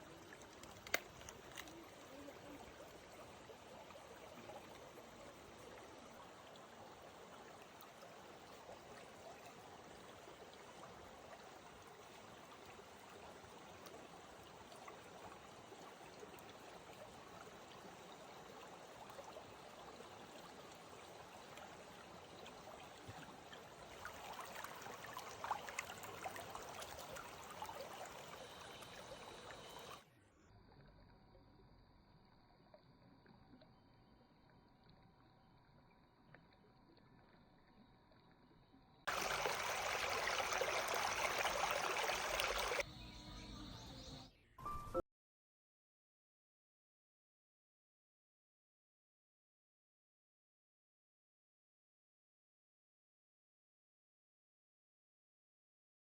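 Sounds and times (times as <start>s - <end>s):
running water: 0.0s - 30.1s, 39.1s - 42.8s.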